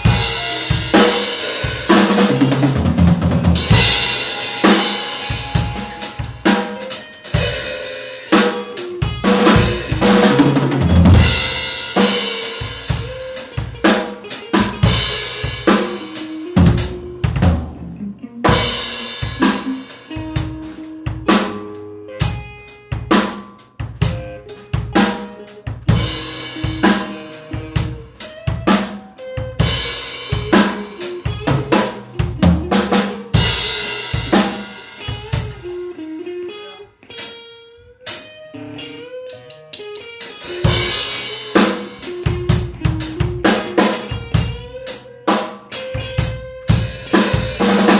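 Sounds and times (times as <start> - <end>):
drum kit played busily: 0.0 - 37.4, 38.0 - 47.9
short held notes: 3.6 - 7.7.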